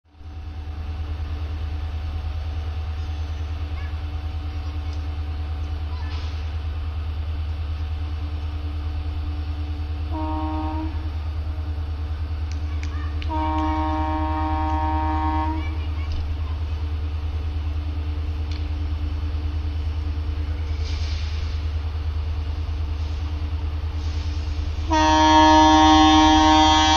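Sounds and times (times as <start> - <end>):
train horn blasts: 10.1 - 11.2, 13.2 - 15.9, 24.8 - 26.9.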